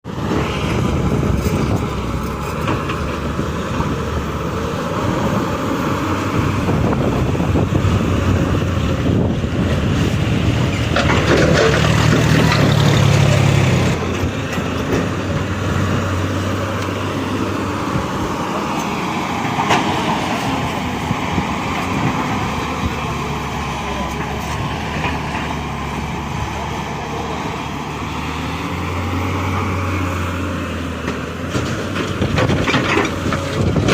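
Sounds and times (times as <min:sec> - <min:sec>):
excavator diesel engine running: 0:00.1 - 0:33.9.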